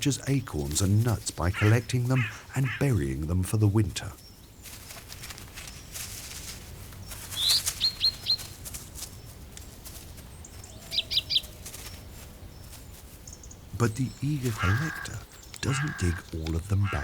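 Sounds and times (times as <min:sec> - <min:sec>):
outdoor background noise: 0:00.0 - 0:17.0
small bird chirping: 0:04.2 - 0:17.0.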